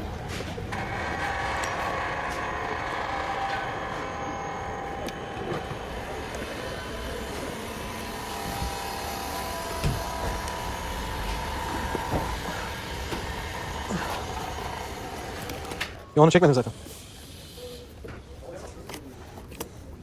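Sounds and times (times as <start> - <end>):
faint steady whine: 0.0 - 19.7
mechanical hum: 0.0 - 20.0.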